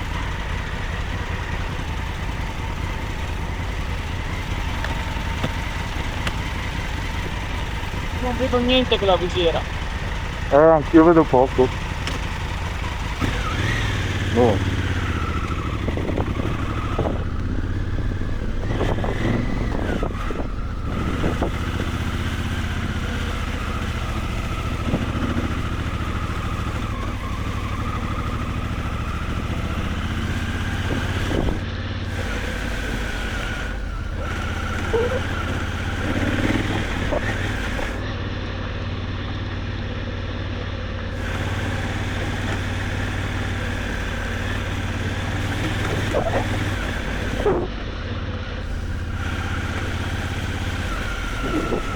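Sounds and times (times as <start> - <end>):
motorcycle knocks and rattles: 0.0 - 38.2, 41.1 - 51.9
motorcycle engine at low revs: 0.0 - 51.9.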